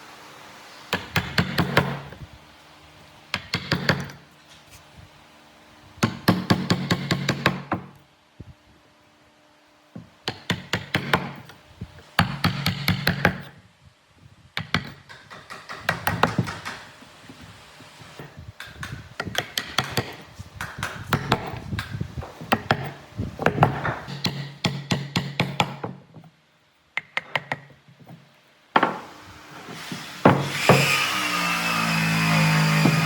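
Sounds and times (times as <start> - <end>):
rapid knocks on wood: 14.6 - 17.4.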